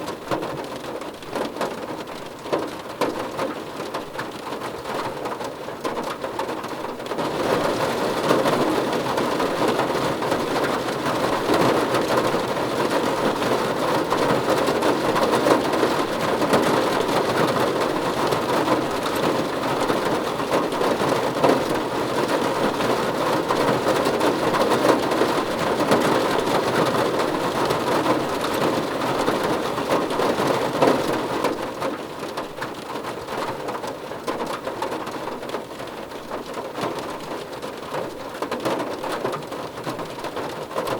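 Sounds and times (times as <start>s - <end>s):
heavy rain drumming on car roof: 0.0s - 40.9s.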